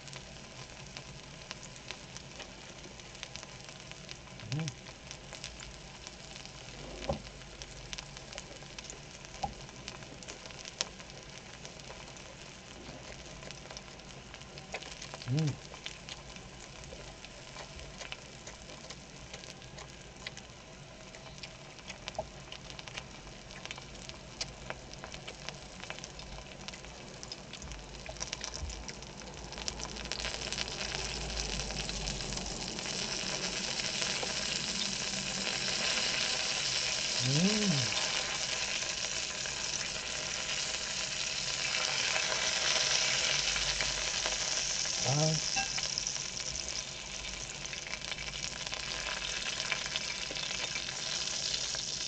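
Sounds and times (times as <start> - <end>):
meat sizzling on a grill: 0.0 - 52.0
fat spitting and crackling: 4.4 - 5.0, 14.7 - 15.8, 33.1 - 38.7, 44.6 - 45.6.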